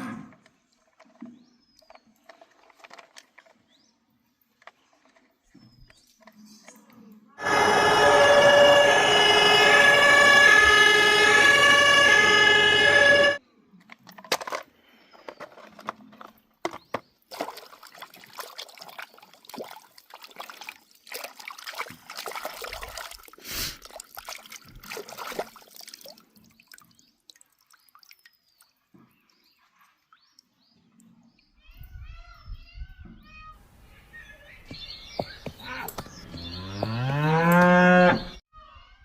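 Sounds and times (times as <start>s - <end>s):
water sloshing and trickling: 0.5s - 7.3s, 15.8s - 31.4s
splashes and clicks: 17.3s - 28.7s.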